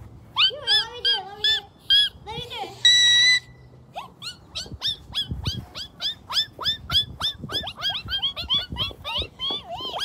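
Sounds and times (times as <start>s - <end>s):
dull low thumps: 4.5s - 9.9s.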